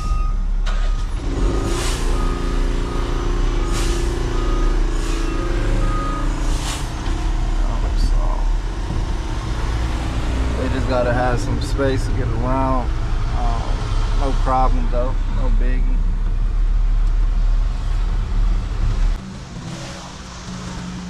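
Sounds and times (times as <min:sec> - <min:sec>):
reversing alarm beeping: 0:00.0 - 0:06.5
diesel truck engine running: 0:00.0 - 0:21.0.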